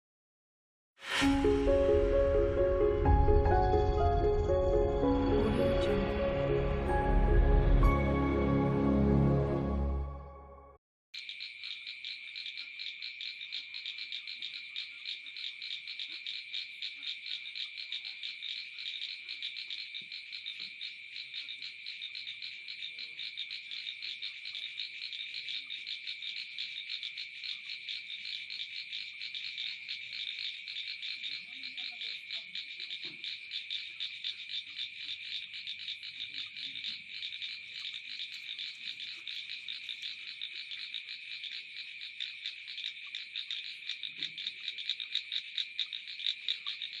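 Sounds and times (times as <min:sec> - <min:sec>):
frogs calling in chorus: 0:11.2 - 0:47.0.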